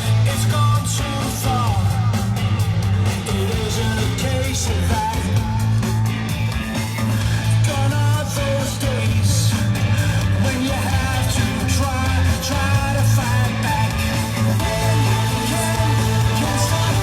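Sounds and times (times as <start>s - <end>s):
bass line: 0.0s - 17.0s
electric guitar: 0.0s - 17.0s
person singing: 10.3s - 17.0s.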